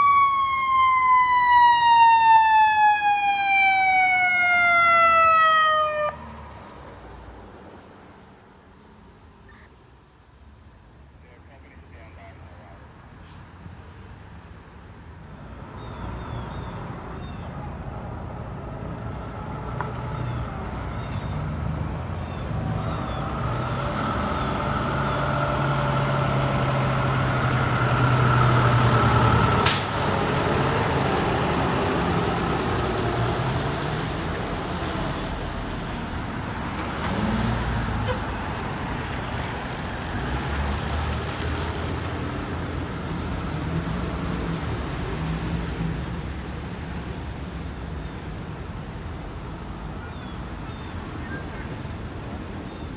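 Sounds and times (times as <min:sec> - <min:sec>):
air brake burst: 0:29.6 - 0:30.0.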